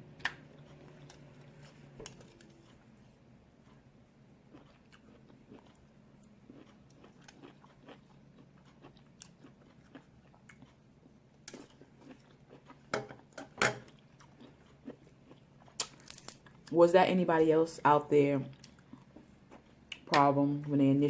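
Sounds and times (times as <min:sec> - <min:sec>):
quiet chewing: 0:00.4 - 0:03.9, 0:04.5 - 0:13.2, 0:13.8 - 0:16.8, 0:18.5 - 0:20.1
crab shell cracking: 0:15.8 - 0:16.4.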